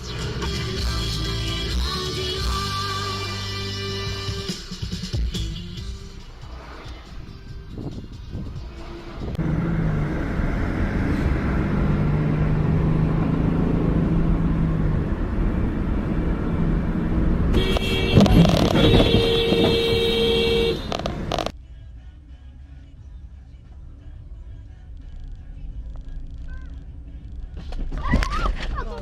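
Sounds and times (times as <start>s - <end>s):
car engine and road rumble: 0.0s - 29.0s
car horn: 17.5s - 21.5s.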